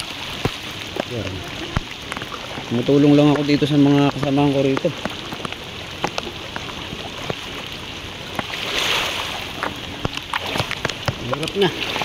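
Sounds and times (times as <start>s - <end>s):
sharp raindrop taps: 0.0s - 8.6s, 9.3s - 12.0s
floodwater sloshing and rushing: 0.0s - 12.0s
heavy rain on floodwater: 0.0s - 12.0s.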